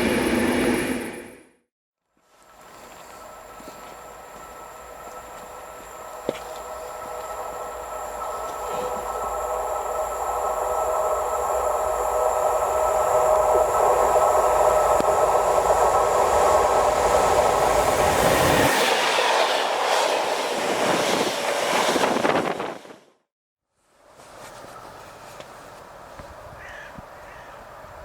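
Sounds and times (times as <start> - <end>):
train passing: 0.0 - 1.5, 2.5 - 23.1
train wheels clacking over rails: 2.8 - 11.8.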